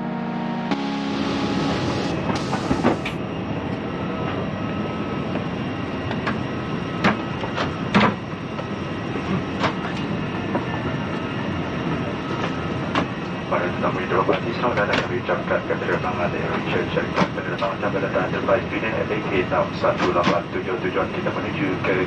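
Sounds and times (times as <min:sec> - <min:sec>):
cabin air rushing: 0:01.4 - 0:03.2.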